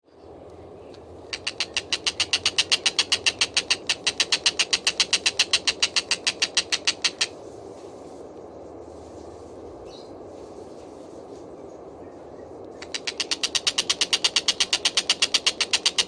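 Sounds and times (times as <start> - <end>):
steady low hum: 0.1 - 16.0
kingfisher calling sharp notes: 1.3 - 7.4, 12.8 - 16.0.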